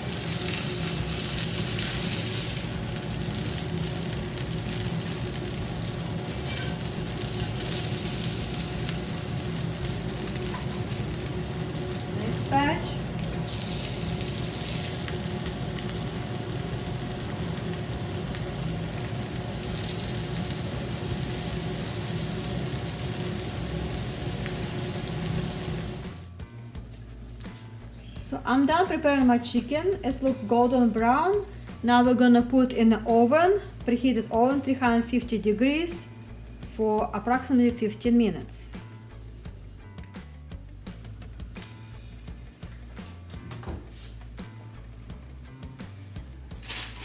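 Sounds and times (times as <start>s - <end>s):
chicken frying in oil: 0.0s - 26.2s.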